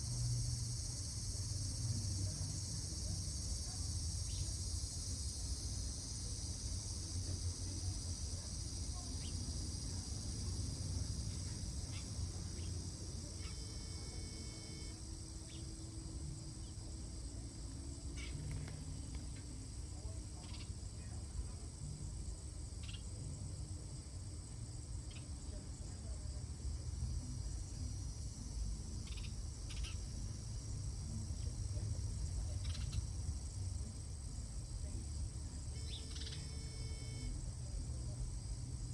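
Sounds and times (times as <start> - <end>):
crickets trilling: 0.0 - 38.9
short insect chirps: 11.2 - 19.8, 22.8 - 23.1, 29.0 - 30.1, 32.6 - 33.2, 35.6 - 37.6.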